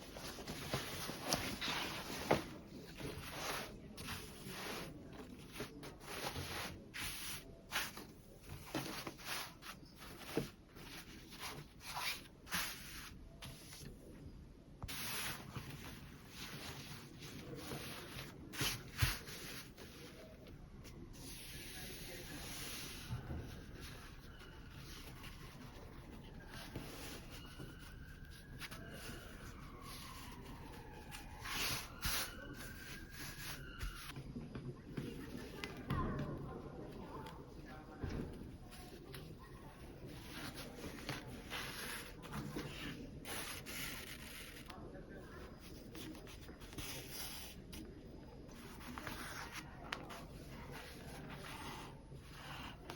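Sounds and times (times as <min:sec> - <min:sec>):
cloth rustling: 0:00.0 - 0:13.9
fabric rubbing and scratching: 0:40.2 - 0:44.7.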